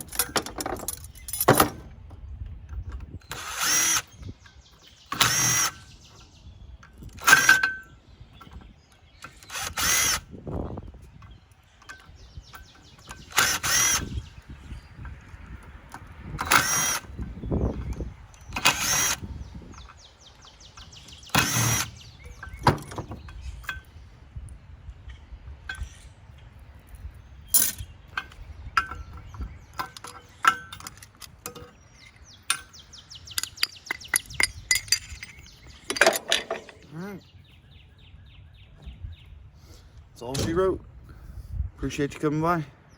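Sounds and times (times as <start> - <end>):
metallic clicks and knocks: 0.0 - 3.4, 15.0 - 24.0, 26.8 - 36.9
power drill bursts: 3.3 - 4.2, 5.1 - 5.9, 9.3 - 10.3, 13.2 - 14.2, 16.5 - 17.1, 18.5 - 19.3, 21.3 - 22.0.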